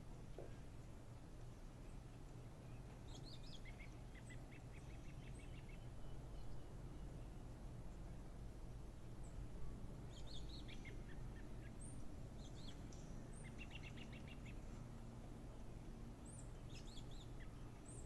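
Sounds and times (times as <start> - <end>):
small birds chirping: 1.8 - 7.5, 10.1 - 14.8, 16.2 - 18.0.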